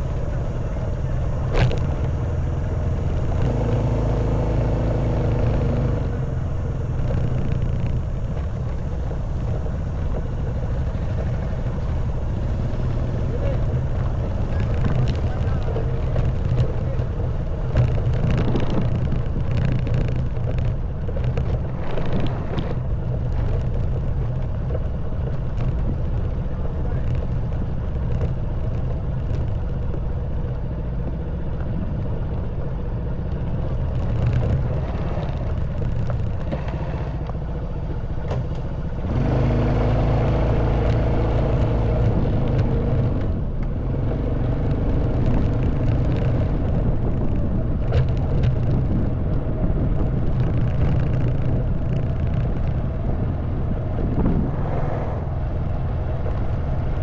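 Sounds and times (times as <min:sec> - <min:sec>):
knocks and rattles from rough road: 0:00.0 - 0:57.0
motorbike engine running: 0:00.0 - 0:57.0
wind rumble on microphone: 0:00.0 - 0:57.0.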